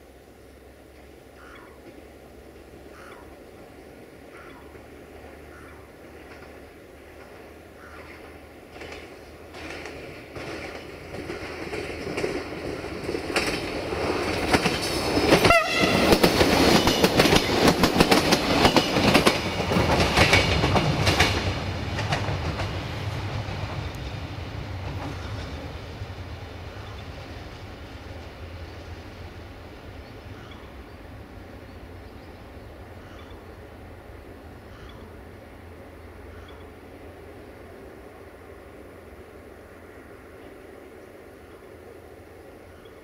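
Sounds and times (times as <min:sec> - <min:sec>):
train wheels clattering over rails: 0:04.4 - 0:28.8.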